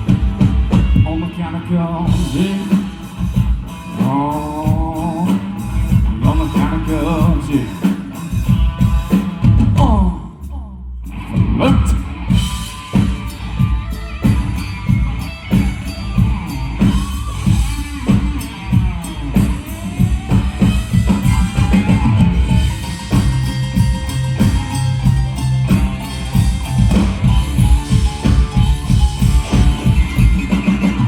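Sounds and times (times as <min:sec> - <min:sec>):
drum-kit beat: 0:00.0 - 0:01.4, 0:02.1 - 0:10.5, 0:11.2 - 0:31.0
bass line: 0:00.0 - 0:31.0
gliding lead instrument: 0:12.4 - 0:31.0.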